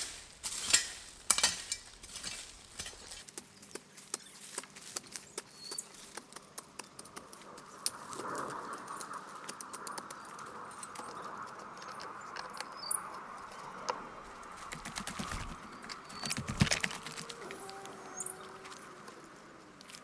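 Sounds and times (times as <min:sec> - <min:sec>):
small birds chirping: 0:02.5 - 0:19.4
pattering clicks: 0:03.3 - 0:17.9.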